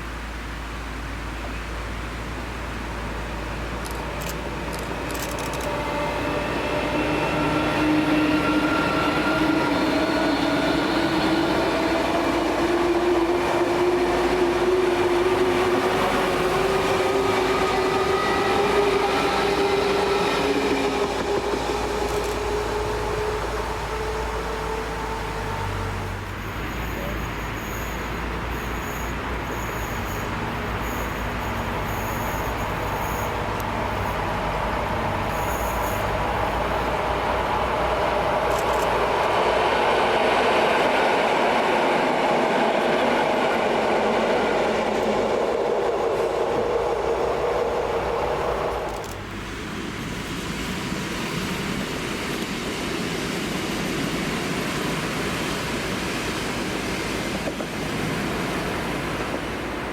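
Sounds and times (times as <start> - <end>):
train running noise: 0.0 - 59.9
electric train motors whining: 4.7 - 39.4.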